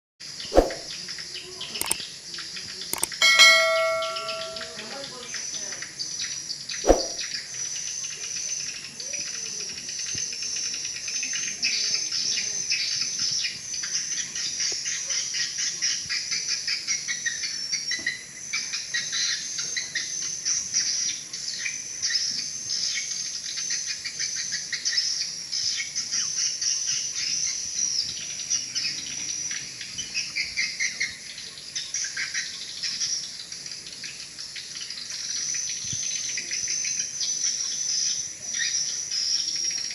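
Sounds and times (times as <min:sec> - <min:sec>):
swiftlet twittering chirps: 0:03.0 - 0:04.8.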